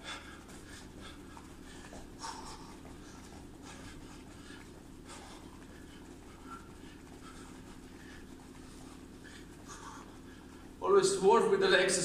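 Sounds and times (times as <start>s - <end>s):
puffs of breath: 0.0s - 10.8s
steady low hum: 0.0s - 12.0s.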